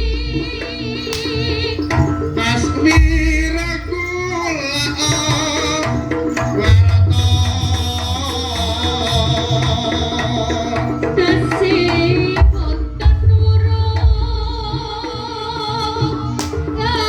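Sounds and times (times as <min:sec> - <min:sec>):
hand drums beating: 0:00.0 - 0:17.0.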